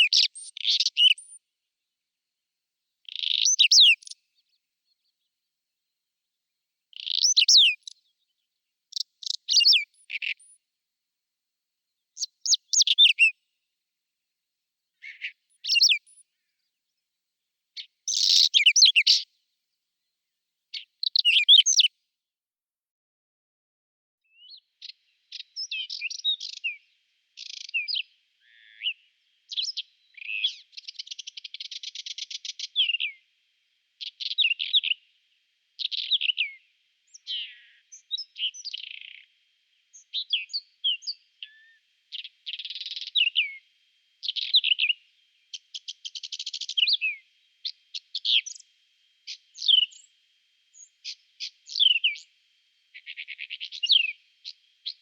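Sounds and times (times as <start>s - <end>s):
bird singing scratchy phrases: 0.0s - 1.4s, 3.0s - 5.2s, 6.9s - 10.6s, 12.2s - 13.4s, 15.0s - 16.7s, 17.8s - 19.3s, 20.7s - 21.9s, 24.3s - 33.3s, 34.0s - 35.1s, 35.8s - 43.6s, 44.2s - 55.0s.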